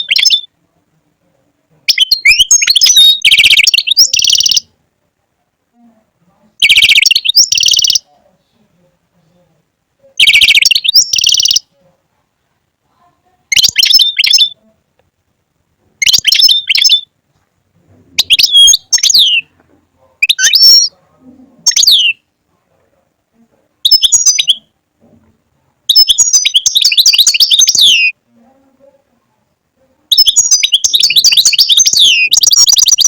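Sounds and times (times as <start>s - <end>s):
goldfinch twittering: 18.2s - 19.4s, 30.1s - 33.0s.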